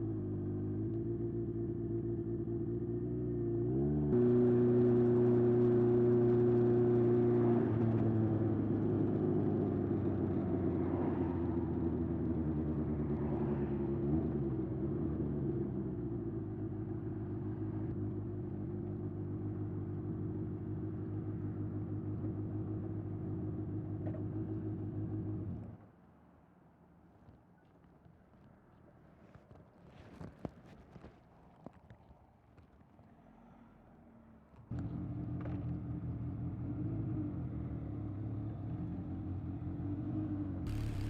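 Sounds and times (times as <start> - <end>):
motorcycle engine running: 40.7 - 41.0.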